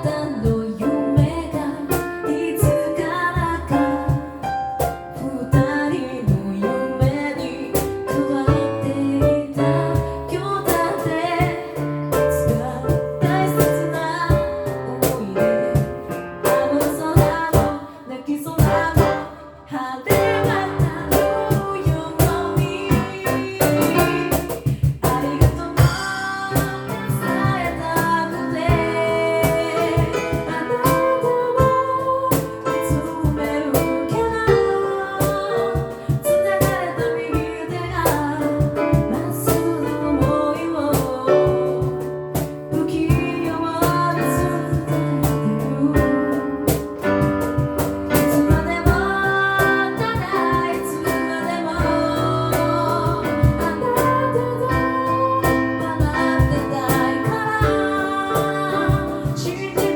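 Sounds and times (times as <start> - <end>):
female lead voice singing: 0.0 - 4.4, 5.0 - 42.1, 42.7 - 47.0, 48.1 - 59.9
percussive vocal strokes: 0.0 - 59.9
backing voices singing: 18.7 - 32.9, 48.8 - 59.9.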